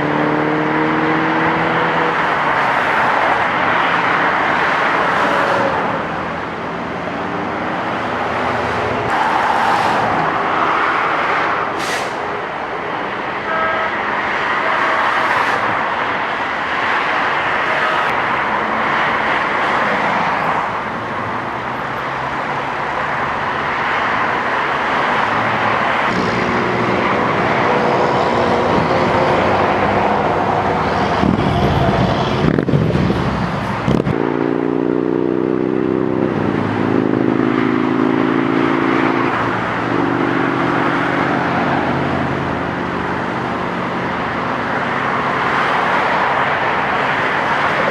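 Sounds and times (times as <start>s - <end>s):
freeway traffic passing: 0.0s - 47.9s
steady engine hum: 15.4s - 47.9s.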